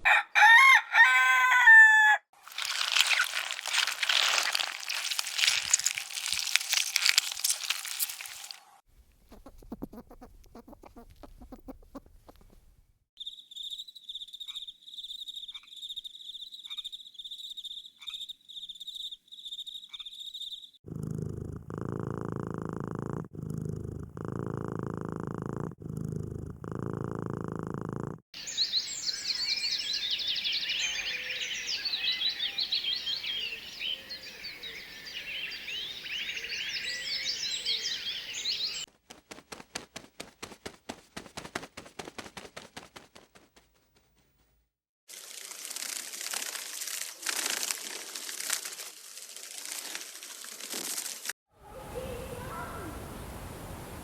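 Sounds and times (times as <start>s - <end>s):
loud low animal rumbling: 20.9s - 28.2s.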